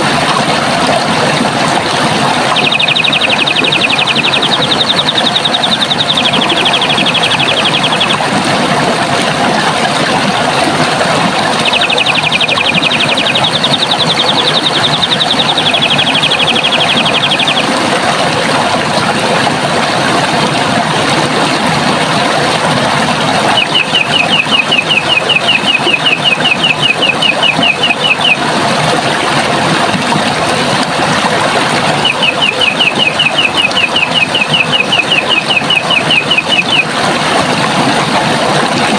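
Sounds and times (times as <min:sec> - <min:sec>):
running water rushing: 0:00.0 - 0:38.9
bird singing trills: 0:02.5 - 0:08.2, 0:11.6 - 0:17.7, 0:23.5 - 0:28.4, 0:32.0 - 0:36.9.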